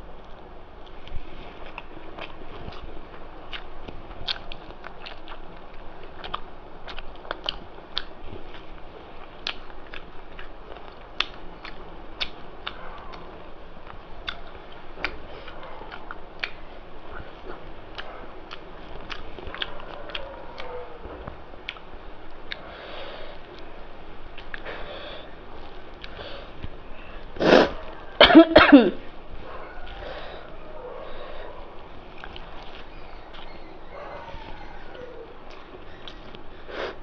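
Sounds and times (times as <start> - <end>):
person chewing with mouth clicks: 0.8 - 20.7, 21.6 - 22.7, 23.3 - 24.8, 25.6 - 28.0, 32.1 - 33.6.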